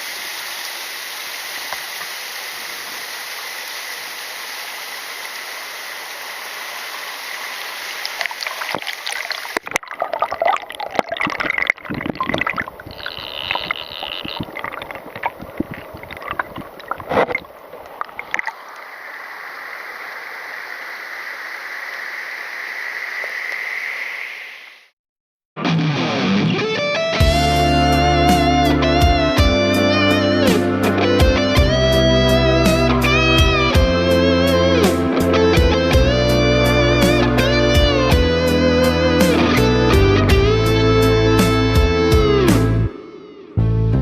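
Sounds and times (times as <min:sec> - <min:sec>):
waterfall rushing: 0:00.0 - 0:09.7.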